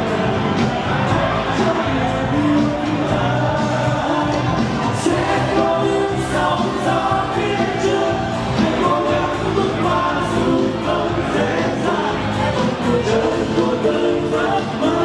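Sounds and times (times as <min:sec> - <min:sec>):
band playing pop with beat: 0:00.0 - 0:15.0
voices singing in harmony: 0:00.0 - 0:15.0.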